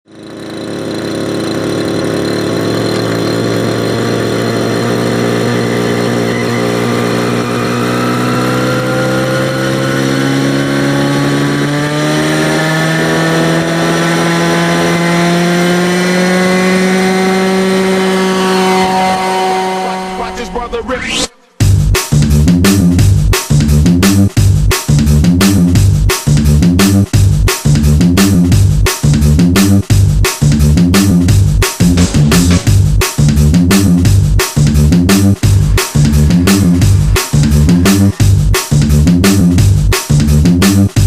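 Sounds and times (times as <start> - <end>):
helicopter engine spooling up: 0.1 - 21.3, 31.8 - 39.9.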